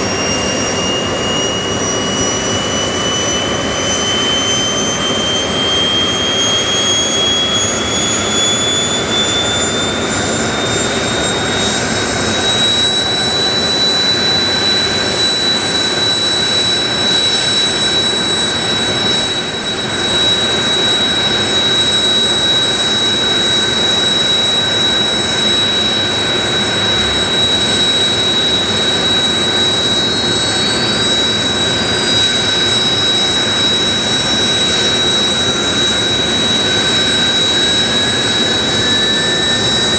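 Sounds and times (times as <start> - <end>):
jet engine whine spooling up: 0.0 - 39.9
rush of jet noise: 0.0 - 39.9.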